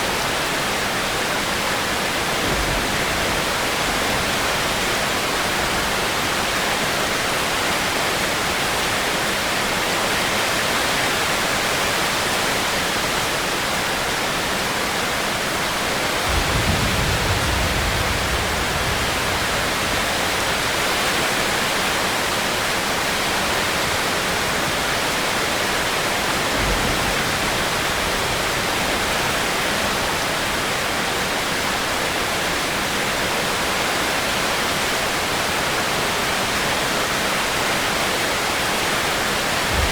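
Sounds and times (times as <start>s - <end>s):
heavy rain falling: 0.0s - 39.9s
low rumble: 39.6s - 39.9s.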